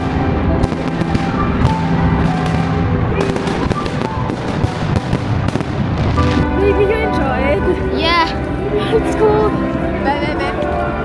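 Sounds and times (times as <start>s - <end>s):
fireworks bangs and crackles: 0.0s - 6.5s.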